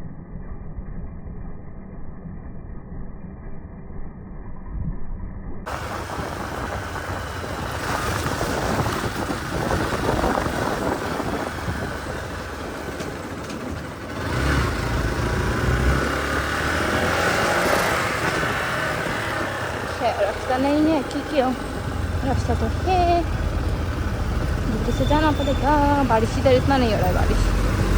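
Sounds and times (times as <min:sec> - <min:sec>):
motorcycle engine running: 0:05.7 - 0:27.9
wind buffeting microphone: 0:05.7 - 0:27.9.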